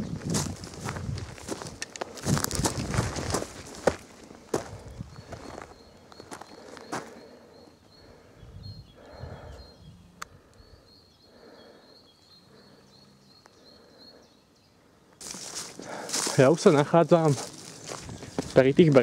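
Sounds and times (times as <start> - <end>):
faint bird song: 0.0 - 19.0.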